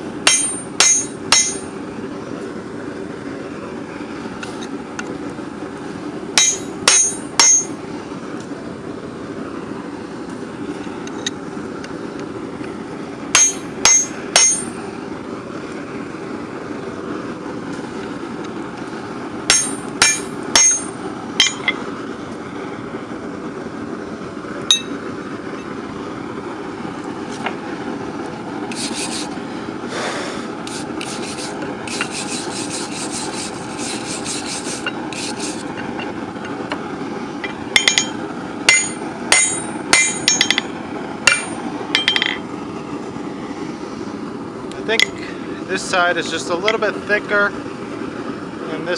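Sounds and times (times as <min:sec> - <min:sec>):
hammer striking hot steel on anvil: 0:00.2 - 0:01.7, 0:06.4 - 0:07.8, 0:13.3 - 0:14.8, 0:19.5 - 0:21.8, 0:24.7 - 0:25.0, 0:37.4 - 0:42.4, 0:45.0 - 0:45.2
rapid scraping: 0:28.7 - 0:29.4, 0:30.7 - 0:35.7.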